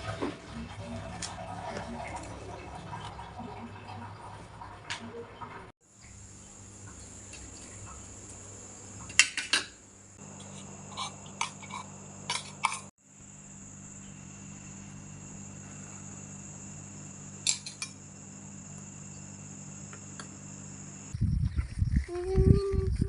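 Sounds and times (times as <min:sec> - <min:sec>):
high-pitched whine over low hum: 0:06.0 - 0:23.0.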